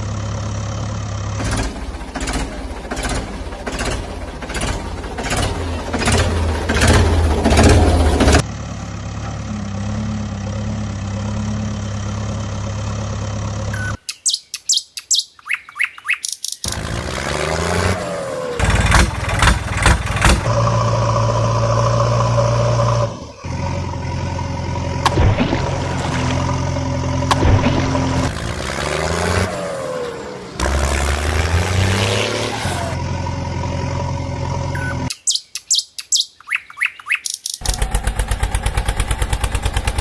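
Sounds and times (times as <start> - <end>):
vehicle engine running: 0.0 - 14.0, 16.7 - 35.1, 37.6 - 40.0
quick bird chirps: 13.8 - 16.7, 34.8 - 37.7.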